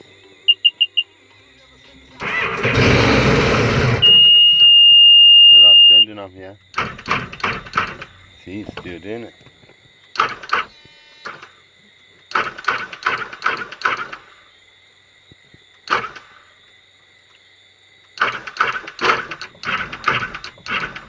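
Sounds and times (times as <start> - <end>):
electric starter motor whirring: 1.9 - 4.9, 6.8 - 9.1, 10.1 - 11.6, 12.3 - 14.3, 18.2 - 21.0.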